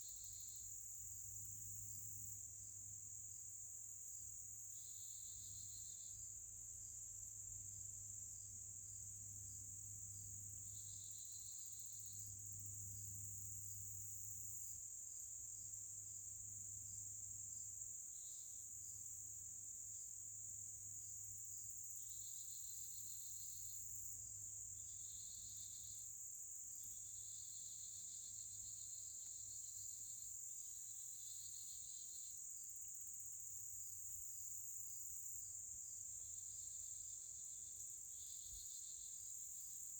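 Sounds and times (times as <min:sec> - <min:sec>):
lower pulsing insect trill: 0:00.0 - 0:39.9
very high insect trill: 0:10.4 - 0:14.8, 0:20.0 - 0:39.9.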